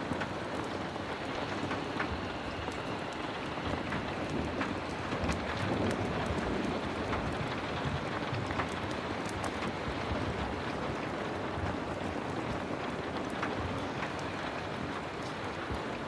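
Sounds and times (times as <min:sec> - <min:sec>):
heavy rain falling: 0:00.0 - 0:16.0
sharp rain ticks: 0:00.0 - 0:16.0.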